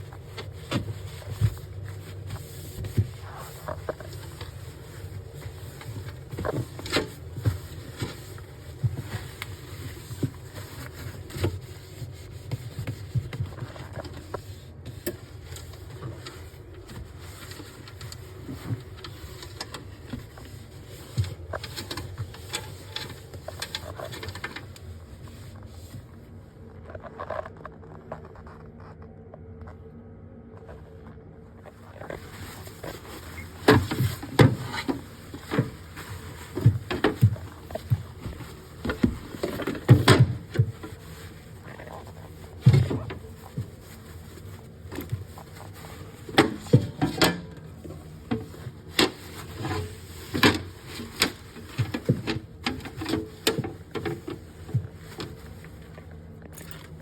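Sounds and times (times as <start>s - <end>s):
steady low hum: 0.0s - 57.0s
objects knocking and clattering: 32.0s - 57.0s.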